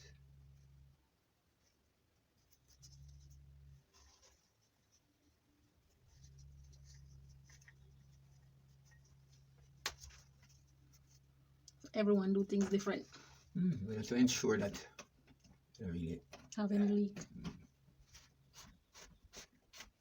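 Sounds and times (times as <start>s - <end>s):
low hum: 0.0s - 18.2s
thread tape rubbing on threads: 1.6s - 11.9s, 17.9s - 20.0s.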